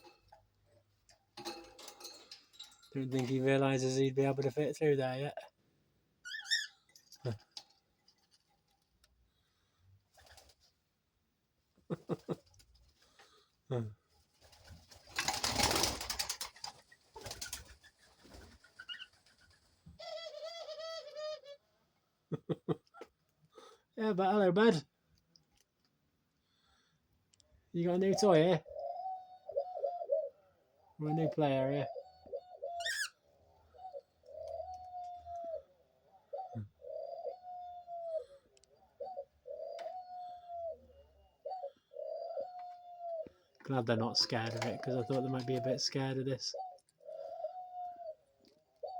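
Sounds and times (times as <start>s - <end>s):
birds scratching and clattering: 0.0s - 4.4s, 14.3s - 20.6s, 44.1s - 46.1s
dove cooing: 13.2s - 21.6s, 28.0s - 43.5s, 44.1s - 48.9s.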